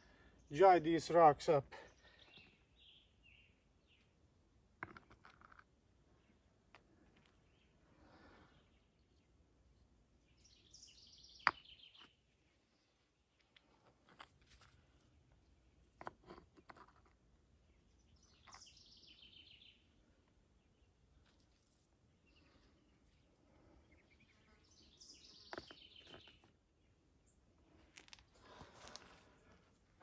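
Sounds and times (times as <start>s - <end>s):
songbird singing: 0.0s - 4.5s, 5.4s - 13.8s, 15.0s - 30.0s.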